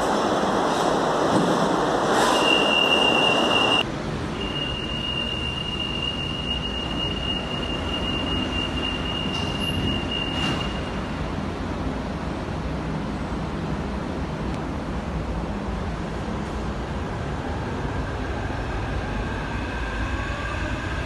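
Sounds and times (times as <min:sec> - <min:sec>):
train rushing on rails: 0:00.0 - 0:21.0
high-pitched wheel squeal: 0:02.2 - 0:03.8, 0:04.4 - 0:11.0.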